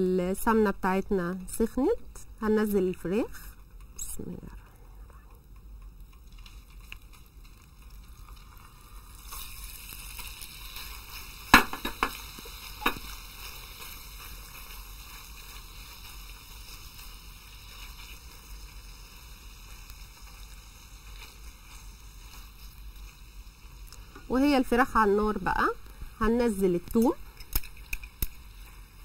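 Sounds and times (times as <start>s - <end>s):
chicken sizzling in a frying pan: 5.4s - 29.0s
sharp knocks against a pan: 11.5s - 12.2s, 12.8s - 13.1s.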